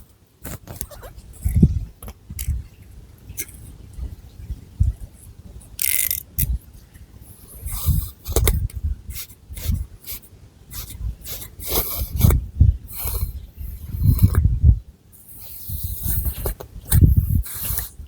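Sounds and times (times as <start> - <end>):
fingernails scratching through hair: 9.1 - 12.4, 15.2 - 18.0.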